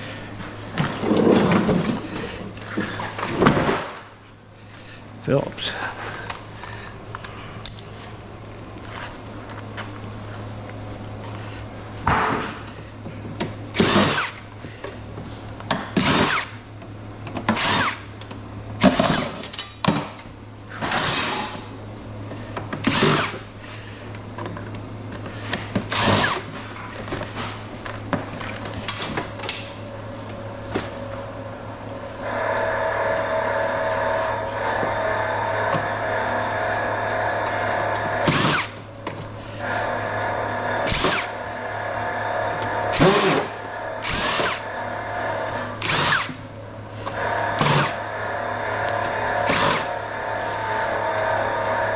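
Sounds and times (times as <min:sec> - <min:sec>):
steady low hum: 0:00.0 - 0:51.9
power drill bursts: 0:13.8 - 0:14.4, 0:16.0 - 0:16.6, 0:17.6 - 0:18.0, 0:22.8 - 0:23.4, 0:25.9 - 0:26.6, 0:32.3 - 0:38.8, 0:40.8 - 0:41.4, 0:42.8 - 0:44.7, 0:45.8 - 0:46.4, 0:47.2 - 0:51.5.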